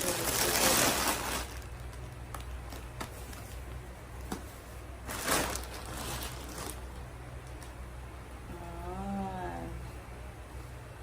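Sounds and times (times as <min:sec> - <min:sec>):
packaging rustle: 0:00.0 - 0:03.7, 0:05.0 - 0:07.6
low steady hum: 0:00.0 - 0:11.0.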